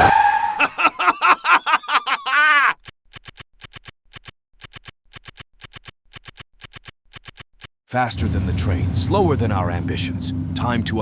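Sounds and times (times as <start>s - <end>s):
soft ticking clicks: 2.8s - 7.7s.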